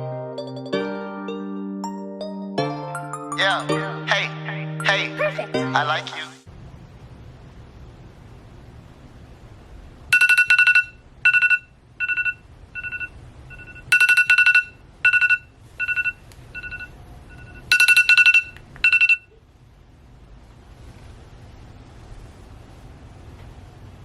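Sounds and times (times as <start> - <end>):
electronic ringtone beeps: 10.1 - 19.4.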